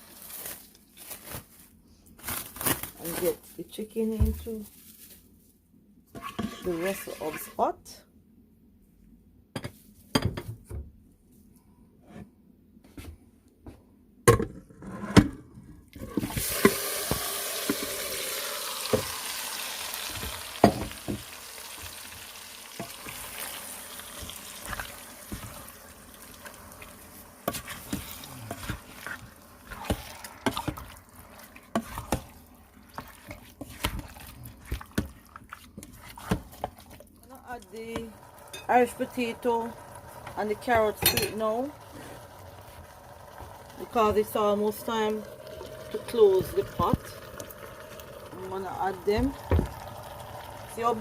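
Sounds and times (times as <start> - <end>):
chicken sizzling in hot oil: 16.1 - 35.0, 37.8 - 51.0.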